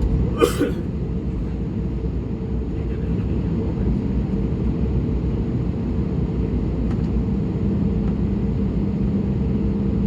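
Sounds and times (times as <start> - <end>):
aircraft cabin engine rumble: 0.0 - 10.0
constant hum: 0.0 - 10.0.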